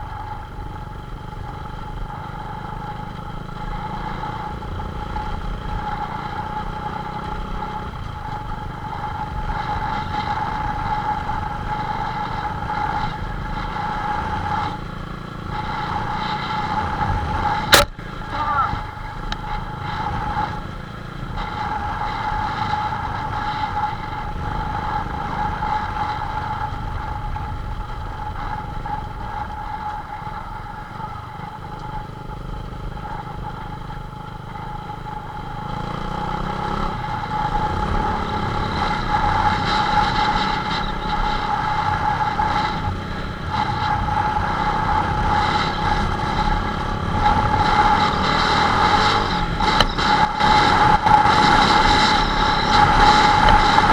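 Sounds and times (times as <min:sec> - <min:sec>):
motorcycle engine running: 0:00.0 - 0:53.9
constant high tone: 0:16.9 - 0:19.6.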